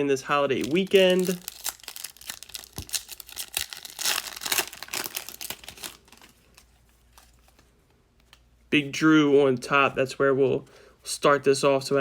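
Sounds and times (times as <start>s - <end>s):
wrapper crinkling and tearing: 0.5s - 7.4s.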